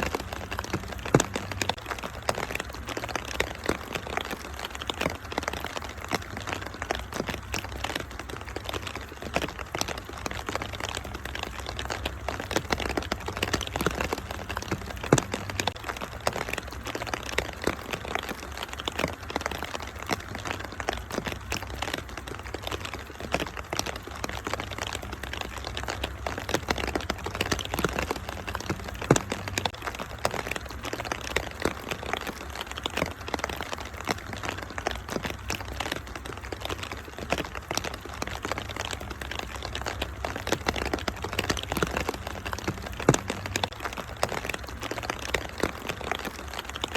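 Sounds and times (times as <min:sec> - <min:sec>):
steady rain: 0:00.0 - 0:46.9
wood fire crackling: 0:00.0 - 0:46.9.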